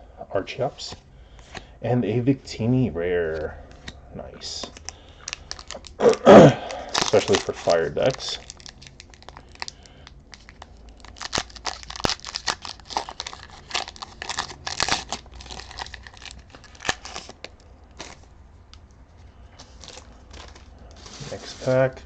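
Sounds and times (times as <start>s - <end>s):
foil wrapper crinkling: 4.6s - 18.3s, 19.6s - 21.7s
cards rustling: 6.8s - 18.3s, 19.6s - 21.9s.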